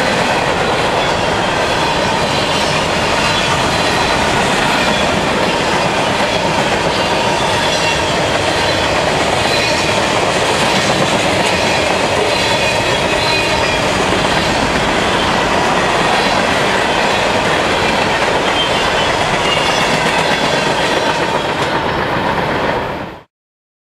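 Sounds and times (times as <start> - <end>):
freight train wheels rumbling on rails: 0.0 - 23.3
high wheel squeals: 11.5 - 21.4.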